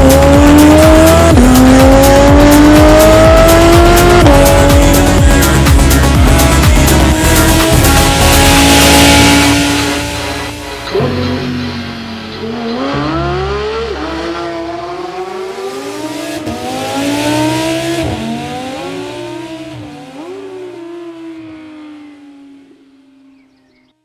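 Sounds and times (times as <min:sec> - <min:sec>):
sports car engine accelerating: 0:00.0 - 0:23.8.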